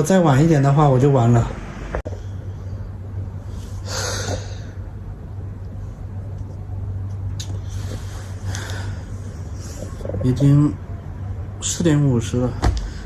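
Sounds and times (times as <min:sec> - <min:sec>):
steady low hum: 0:00.0 - 0:13.0
breathy exhale: 0:03.6 - 0:04.8, 0:07.6 - 0:09.8.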